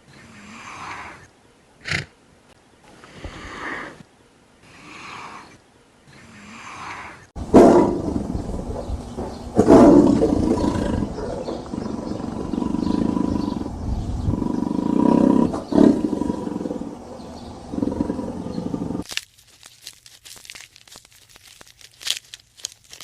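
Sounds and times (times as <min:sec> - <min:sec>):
big cat roaring: 0:09.6 - 0:19.0.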